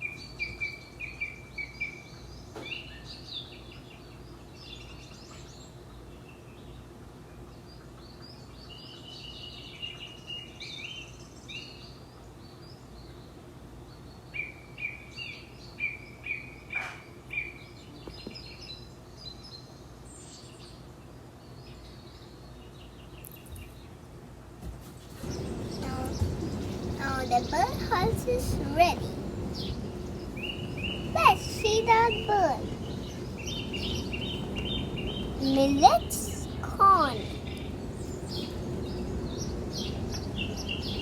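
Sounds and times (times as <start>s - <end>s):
birds chirping and singing: 25.2s - 41.0s
steady low hum: 25.2s - 41.0s.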